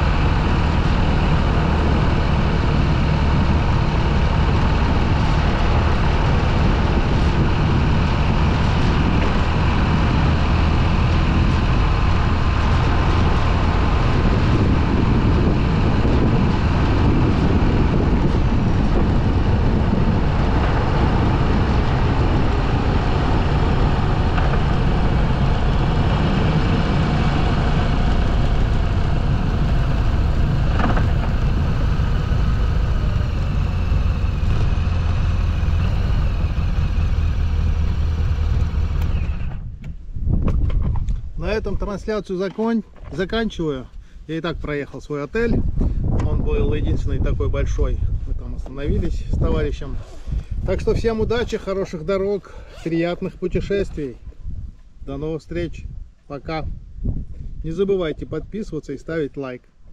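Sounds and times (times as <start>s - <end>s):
motorcycle engine drone: 0.0s - 40.9s
wind noise on microphone: 0.0s - 42.2s, 43.0s - 59.0s.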